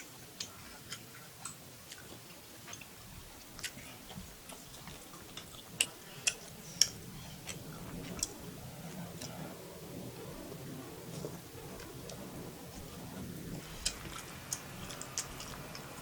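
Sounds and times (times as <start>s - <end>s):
soft chewing: 0.0s - 16.0s
wet mouth clicks and smacks: 13.8s - 16.0s.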